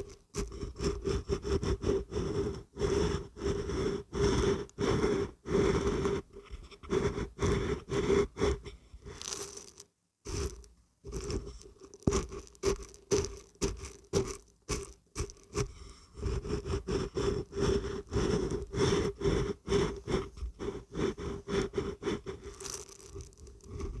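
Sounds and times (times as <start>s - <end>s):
dried beans rattling when shaken: 9.2s - 15.6s, 22.4s - 23.8s.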